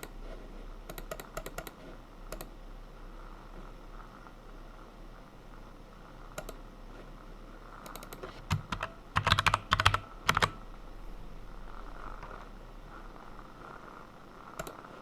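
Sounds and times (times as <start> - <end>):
typing on computer keyboard: 0.9 - 2.5, 6.4 - 6.6, 7.8 - 10.6, 14.6 - 14.8.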